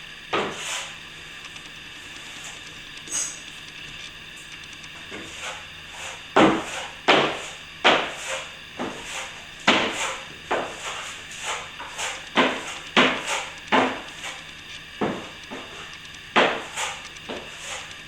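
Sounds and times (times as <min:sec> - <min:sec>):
trowel scraping plaster: 0:05.1 - 0:14.4, 0:16.4 - 0:18.0.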